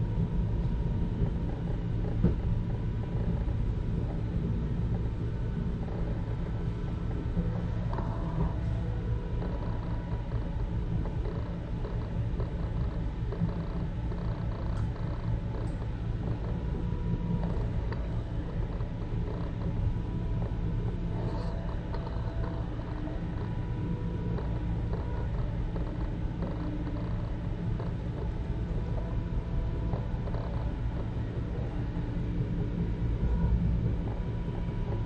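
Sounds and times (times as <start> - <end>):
faint whine: 0.0 - 35.0
train car clicks and creaks: 1.2 - 4.3, 21.2 - 23.6.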